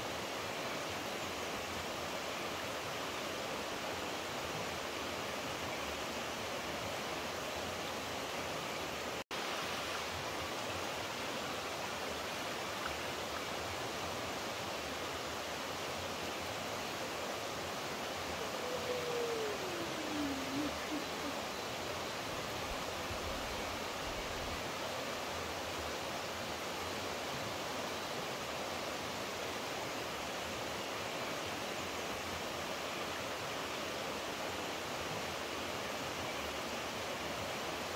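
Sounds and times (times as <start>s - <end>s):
flowing water rushing: 0.0s - 37.9s
faint falling call: 18.4s - 21.6s.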